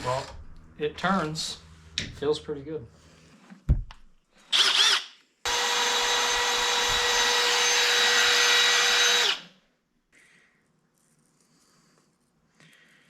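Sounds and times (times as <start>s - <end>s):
small motor tool whining: 4.5s - 9.6s.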